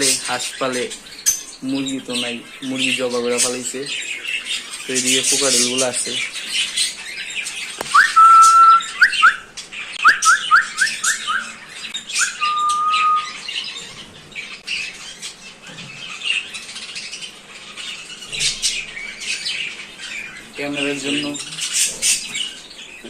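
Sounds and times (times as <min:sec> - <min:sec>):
small birds chirping and squawking: 0:00.0 - 0:23.0
cockatiels whistling: 0:07.8 - 0:14.0.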